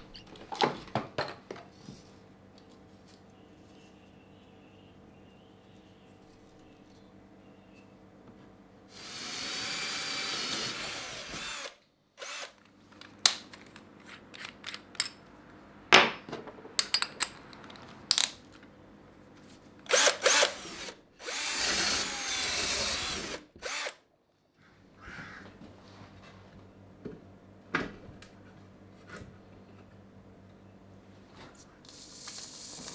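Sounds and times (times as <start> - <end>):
small power drill running: 8.9 - 12.6, 19.9 - 24.0
handling clicks and knocks: 12.9 - 15.2.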